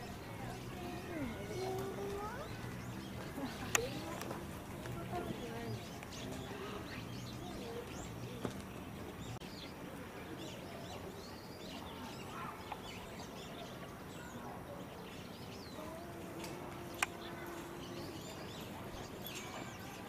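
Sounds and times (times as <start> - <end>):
murmur of background voices: 0.0 - 20.0
small birds chirping: 0.0 - 20.0.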